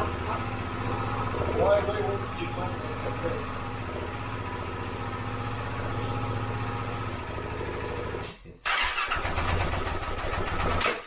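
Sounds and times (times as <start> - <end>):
motorcycle engine running: 0.0 - 11.0
engine cranking and firing: 7.0 - 11.0.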